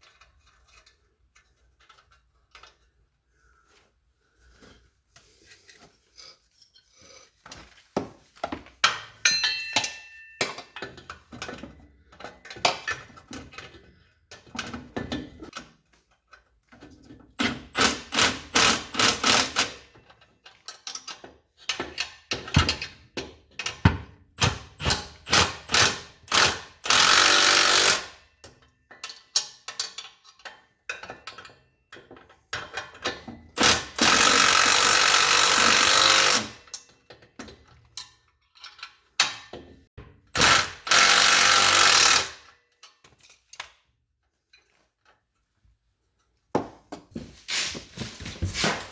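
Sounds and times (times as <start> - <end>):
metal tool clicks and knocks: 8.8 - 13.7
power tool running: 26.9 - 28.0, 34.0 - 36.5, 40.4 - 42.4.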